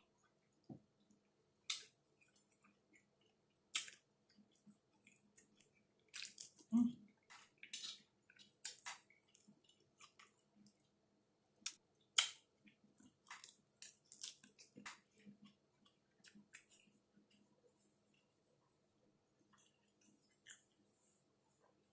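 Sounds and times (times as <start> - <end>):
person chewing crunchy food: 1.6 - 10.9, 11.6 - 17.6.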